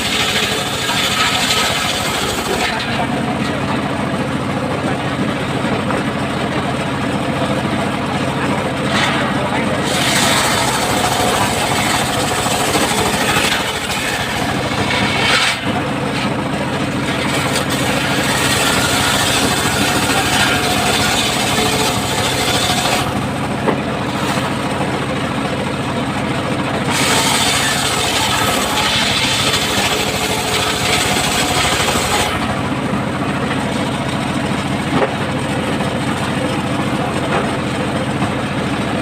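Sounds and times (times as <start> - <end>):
circular saw cutting wood: 0.0 - 5.1, 8.4 - 25.4, 26.8 - 35.1.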